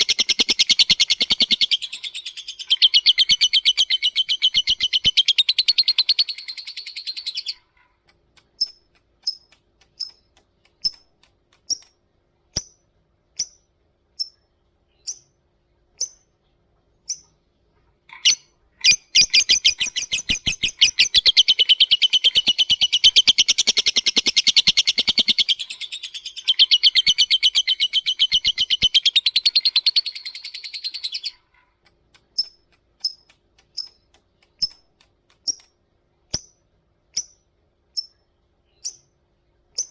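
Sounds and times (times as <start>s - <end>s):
lovebird chattering trill: 0.0s - 7.6s, 18.2s - 31.4s
lovebird sharp chirps: 0.0s - 7.6s, 15.0s - 15.4s, 18.2s - 31.4s, 38.8s - 39.2s.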